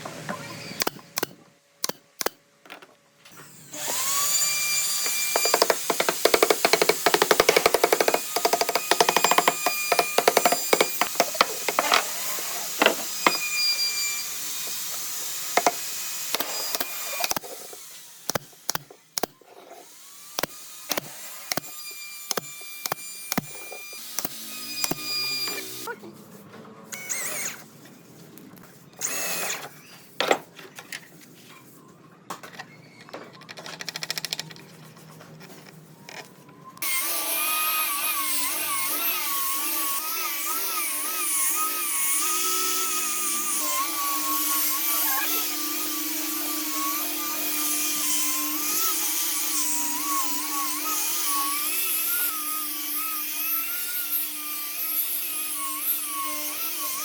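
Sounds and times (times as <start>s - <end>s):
power tool whining: 3.3s - 25.9s, 26.9s - 27.7s, 29.0s - 29.9s.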